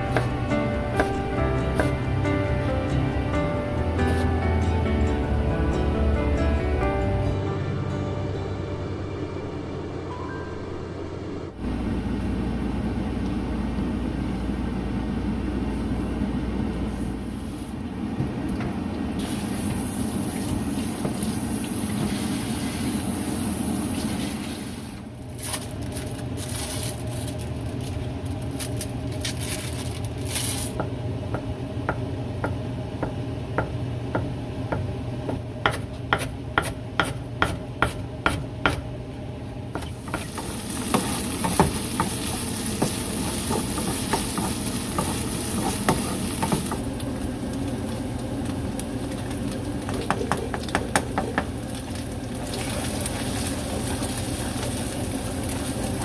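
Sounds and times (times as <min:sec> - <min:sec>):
steady low hum: 0:00.0 - 0:56.0
sizzling in a pan: 0:39.9 - 0:56.0.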